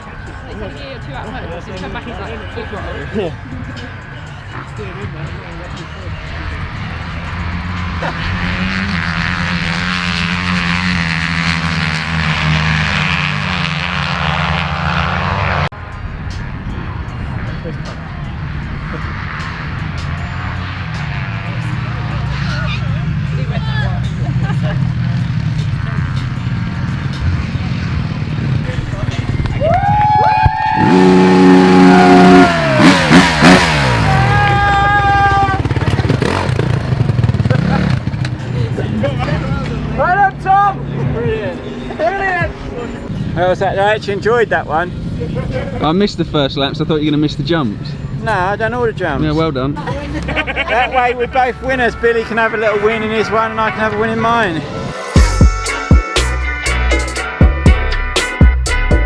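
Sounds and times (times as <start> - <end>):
motocross bike engine: 4.5 - 15.7, 17.5 - 45.9
motocross bike engine revving: 7.0 - 15.7, 30.5 - 40.0.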